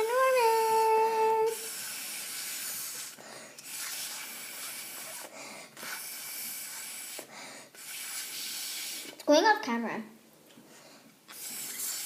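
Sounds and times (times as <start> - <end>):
breath blown through a straw: 0.6 - 9.2, 11.3 - 12.0.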